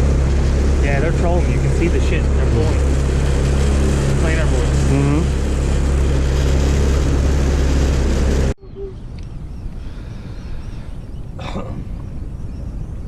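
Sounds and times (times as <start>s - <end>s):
outboard motor running: 0.0s - 8.8s
low rumble: 0.0s - 13.0s
water noise: 0.0s - 13.0s
wind: 0.0s - 13.0s.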